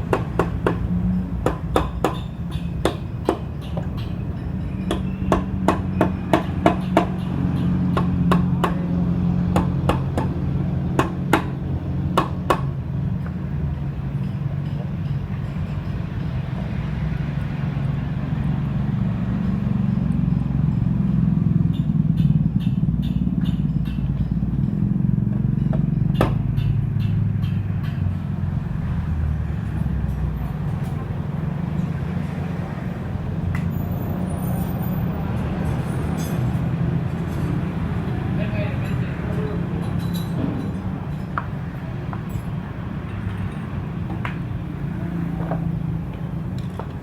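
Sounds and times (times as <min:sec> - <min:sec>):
vehicle engine running: 0:00.0 - 0:47.0
sharp metallic clicks and taps: 0:00.1 - 0:08.9, 0:21.6 - 0:28.4.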